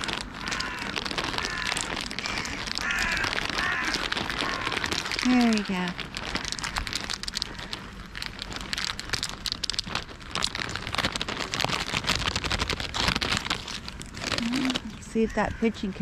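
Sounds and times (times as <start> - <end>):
patter of small clicks and crackles: 0.0 - 16.0.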